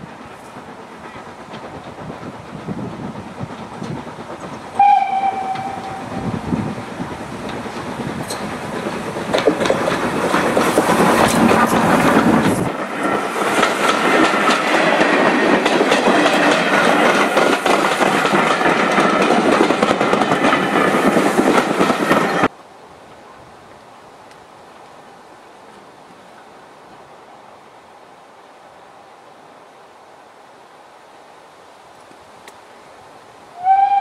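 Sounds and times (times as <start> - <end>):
train wheels clickety-clack: 0.0 - 22.5
steam locomotive passing: 0.0 - 31.3, 31.9 - 34.0.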